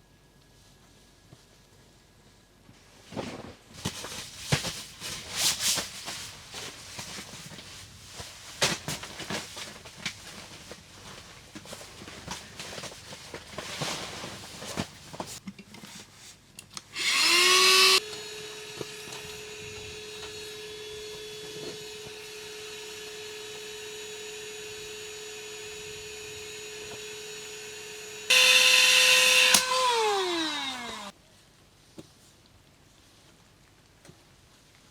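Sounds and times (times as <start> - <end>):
clicks and handling rustles: 2.7 - 16.9
electric air pump motor whining: 17.0 - 31.1.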